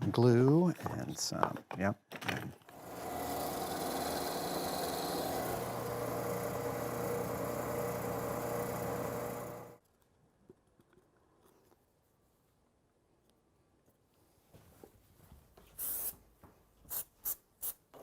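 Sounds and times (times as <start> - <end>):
power tool motor running: 2.7 - 9.8.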